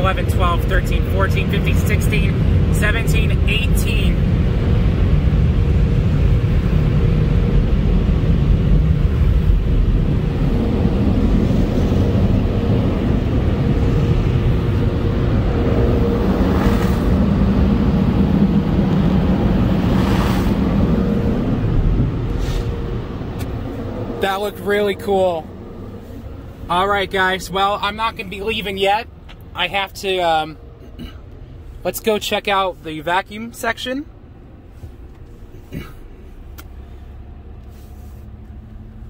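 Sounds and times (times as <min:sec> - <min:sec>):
car wash equipment rumble: 0:00.0 - 0:39.0
brief hiss: 0:22.3 - 0:22.8.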